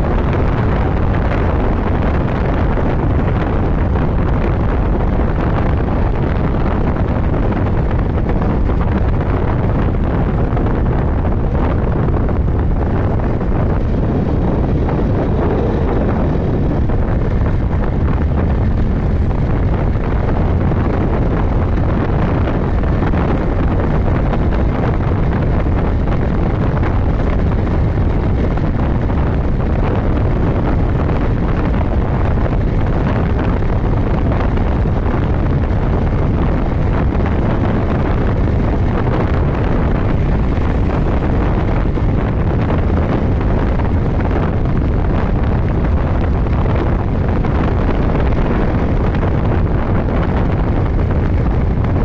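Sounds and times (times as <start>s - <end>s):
motorcycle engine running: 0.0s - 52.0s
wind rush on microphone: 0.0s - 52.0s.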